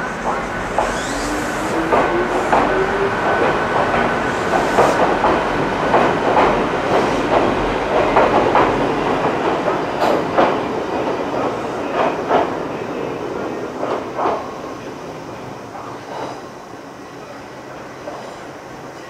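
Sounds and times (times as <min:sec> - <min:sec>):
train rumble: 0:00.0 - 0:14.6.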